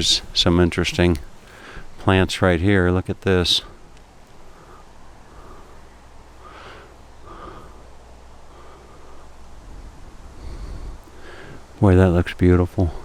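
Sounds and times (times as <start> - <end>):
steady low rumble: 0.0 - 13.0
faint breathing: 0.1 - 2.0, 3.6 - 11.8.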